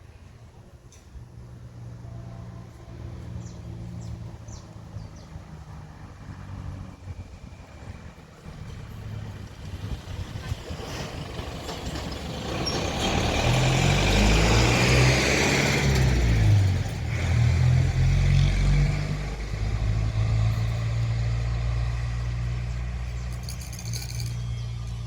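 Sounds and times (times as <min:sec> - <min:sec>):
diesel locomotives droning: 0:00.0 - 0:25.0
rushing hiss of passing train: 0:08.0 - 0:17.7.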